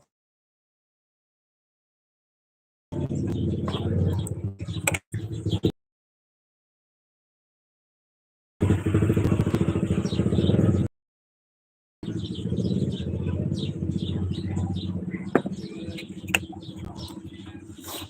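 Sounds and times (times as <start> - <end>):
small birds chirping: 2.9 - 5.7, 8.7 - 10.9, 12.0 - 18.0.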